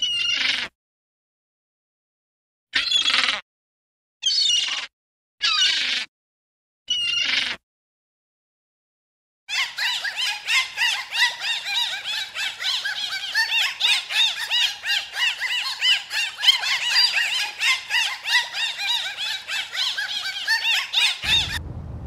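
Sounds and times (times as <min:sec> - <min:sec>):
whale chirping calls: 0:09.5 - 0:21.6.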